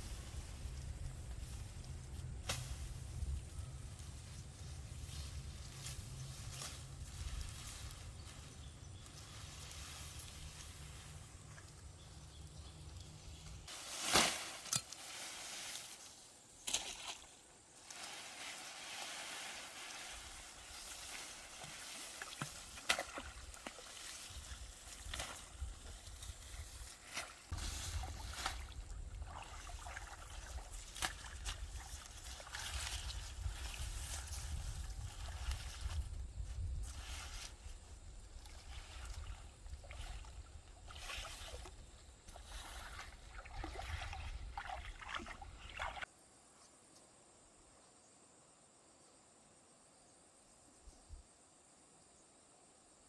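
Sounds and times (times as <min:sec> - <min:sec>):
knocks and splashes: 0:21.6 - 0:24.2, 0:38.4 - 0:46.0
stream water trickling: 0:27.5 - 0:34.9, 0:38.4 - 0:46.1.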